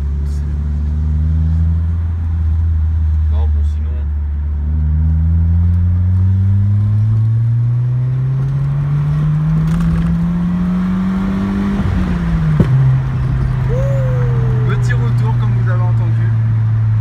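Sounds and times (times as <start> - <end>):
car engine and exhaust: 0.0 - 17.0
exhaust backfire pop: 12.5 - 13.6.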